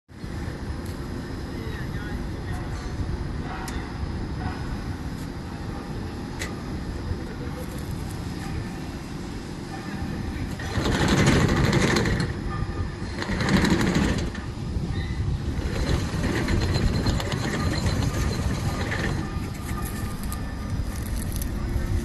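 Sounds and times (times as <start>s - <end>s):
lawn mower engine running: 10.5s - 12.4s, 13.0s - 14.4s, 15.4s - 22.0s.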